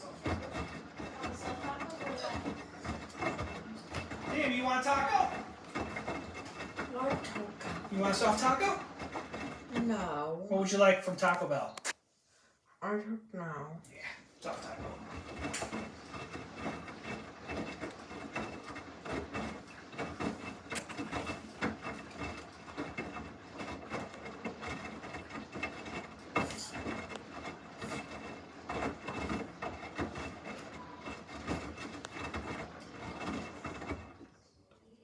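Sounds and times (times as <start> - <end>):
small knocks: 0.0 - 10.1, 14.4 - 34.4
clothes swishing in washing machine: 0.0 - 11.6, 14.2 - 35.0.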